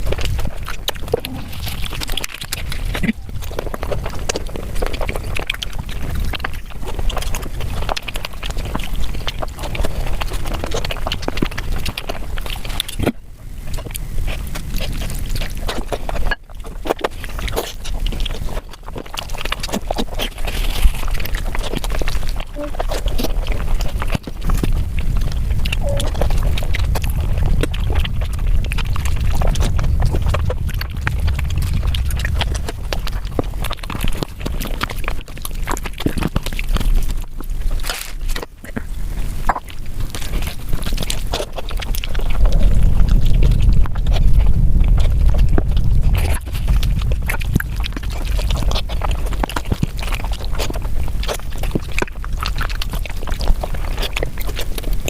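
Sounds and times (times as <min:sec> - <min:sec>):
chewing and smacking food: 0:00.0 - 0:55.0.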